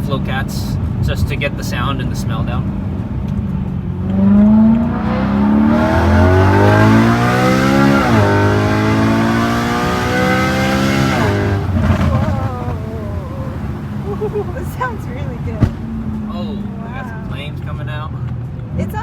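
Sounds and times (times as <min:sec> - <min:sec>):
car engine revving hard: 0:03.9 - 0:17.8.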